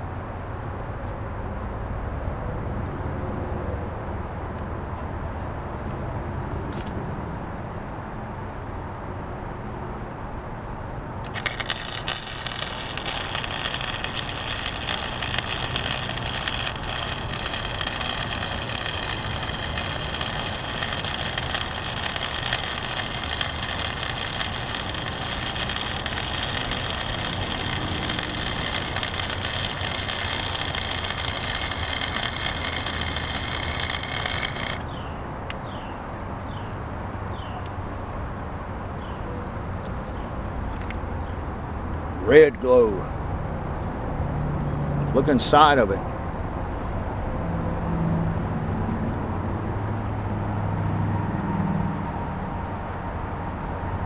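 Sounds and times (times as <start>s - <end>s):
welding arc crackling: 11.2s - 35.0s.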